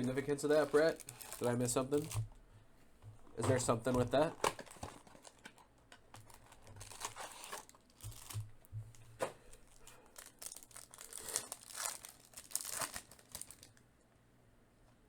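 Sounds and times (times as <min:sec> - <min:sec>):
foil wrapper tearing and crinkling: 0:00.0 - 0:02.2, 0:03.7 - 0:08.5, 0:09.5 - 0:13.8.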